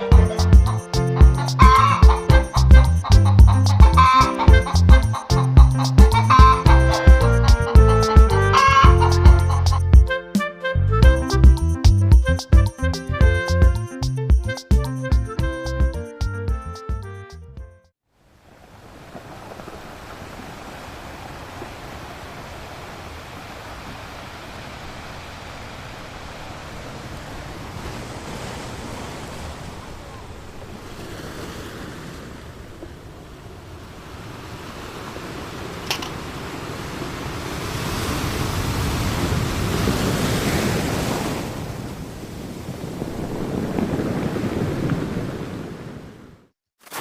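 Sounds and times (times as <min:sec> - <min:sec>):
wind noise on microphone: 0:37.8 - 0:46.4.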